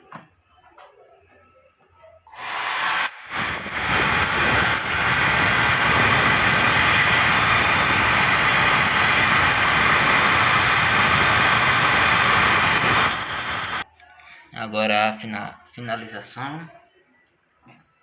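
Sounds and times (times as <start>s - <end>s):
hair dryer running: 2.3s - 13.8s.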